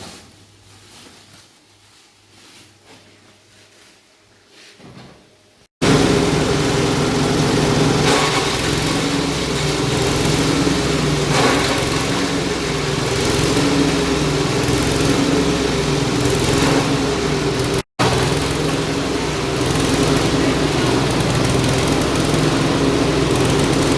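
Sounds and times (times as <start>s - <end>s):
engine-driven chopper droning: 5.8s - 23.9s.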